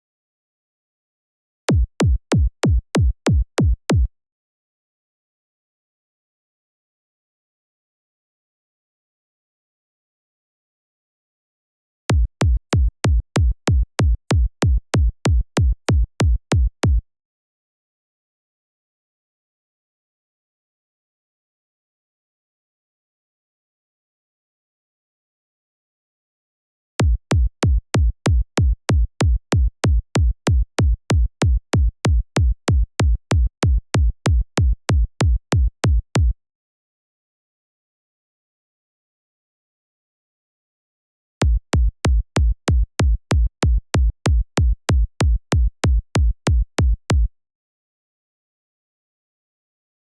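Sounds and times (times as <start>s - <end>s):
synth kick drum: 1.7s - 4.1s, 12.1s - 17.0s, 27.0s - 36.3s, 41.4s - 47.3s.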